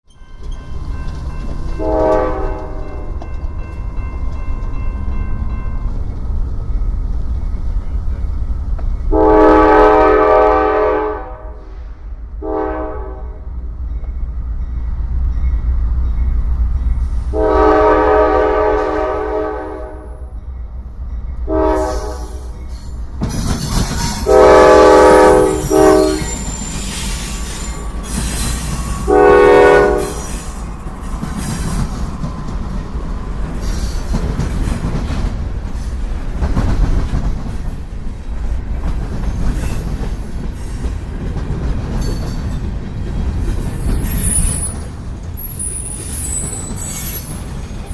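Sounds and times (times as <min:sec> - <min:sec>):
train wheels on rail: 0:00.1 - 0:47.9
locomotive air horn blasts: 0:01.8 - 0:03.0, 0:09.1 - 0:13.4, 0:17.3 - 0:20.3, 0:21.5 - 0:22.6, 0:24.1 - 0:26.5, 0:29.0 - 0:30.5.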